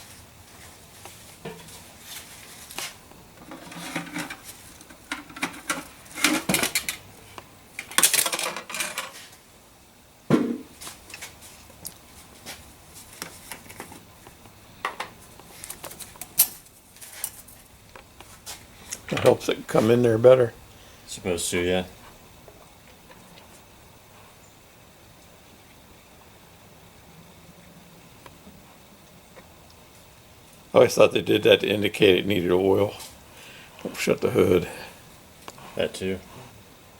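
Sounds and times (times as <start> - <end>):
rustling: 0.0 - 9.4
plastic bottles clattering: 3.4 - 7.0, 7.8 - 9.2.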